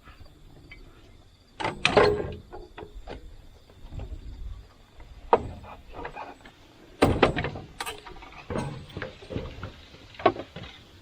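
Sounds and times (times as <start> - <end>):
heavy metal parts clunking: 1.6 - 4.4, 5.0 - 10.9.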